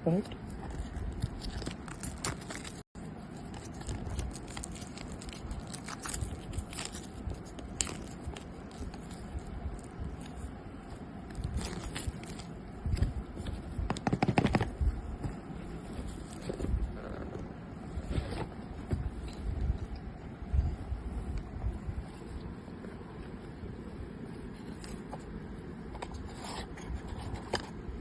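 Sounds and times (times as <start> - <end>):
packaging scraping and rustling: 0.5 - 19.6.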